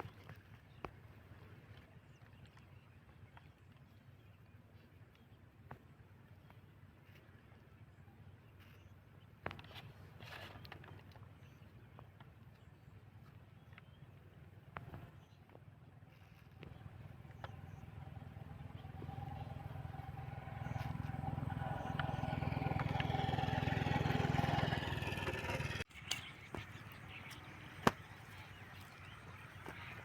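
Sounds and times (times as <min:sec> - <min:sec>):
engine running: 0:16.0 - 0:30.0.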